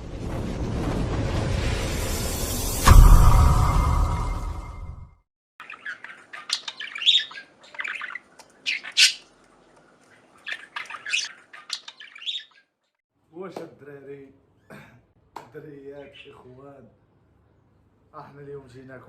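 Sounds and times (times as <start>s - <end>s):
intro music: 0.2s - 5.2s
cage birds chirping and squawking: 5.6s - 12.8s, 15.9s - 16.6s.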